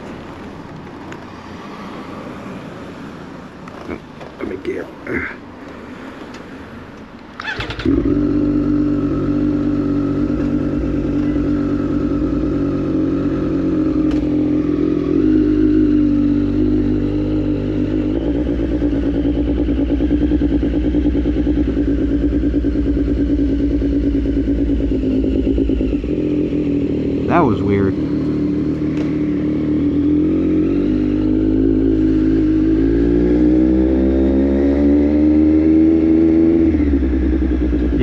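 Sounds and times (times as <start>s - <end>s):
motorcycle engine starting and idling: 7.3s - 32.8s.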